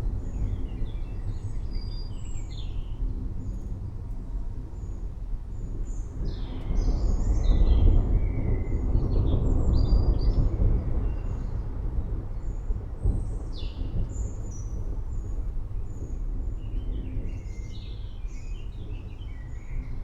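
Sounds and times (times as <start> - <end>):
thunder rumbling: 6.2 - 20.0.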